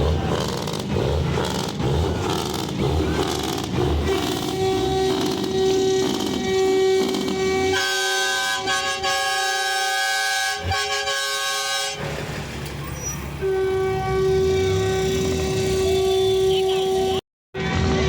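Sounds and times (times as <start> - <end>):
multi-note horn blasts: 3.8 - 12.2, 13.3 - 18.0.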